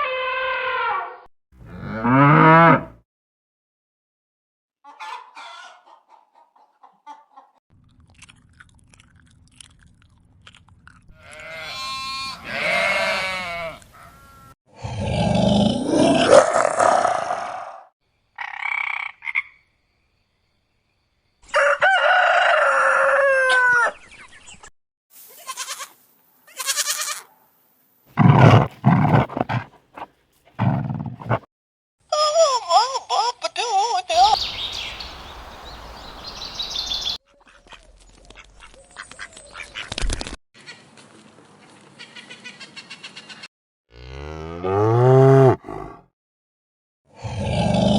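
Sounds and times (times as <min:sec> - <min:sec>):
farm animal calls: 0:04.9 - 0:07.6, 0:11.2 - 0:15.0, 0:28.2 - 0:31.5
rooster crowing: 0:21.5 - 0:24.0.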